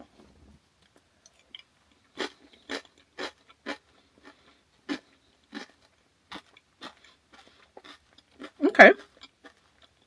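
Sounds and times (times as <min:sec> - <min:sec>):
chewing crisp rice crackers: 0:00.9 - 0:10.0.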